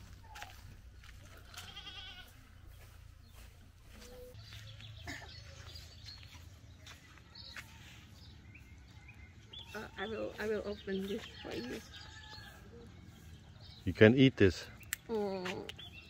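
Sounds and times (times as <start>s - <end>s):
goat bleating: 1.2s - 2.4s.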